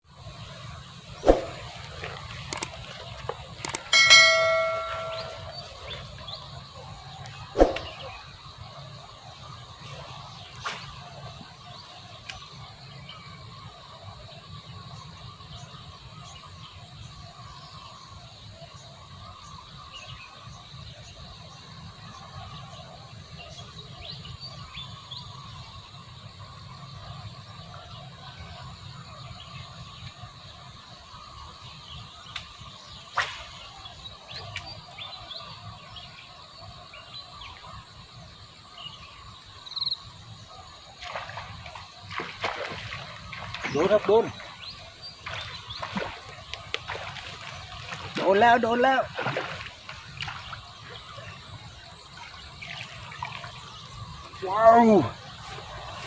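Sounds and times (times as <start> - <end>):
insects chirring and chirping: 0.0 - 56.0
quick falling calls: 3.9 - 5.5
small metal bell ringing: 3.9 - 5.7.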